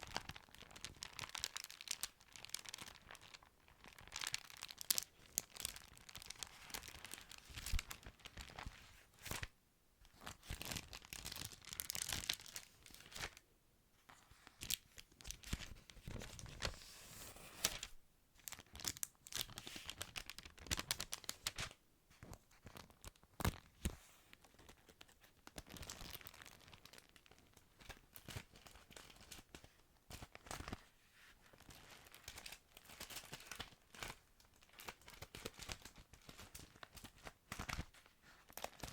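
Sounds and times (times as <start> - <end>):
paper pages rustling: 14.1 - 18.6.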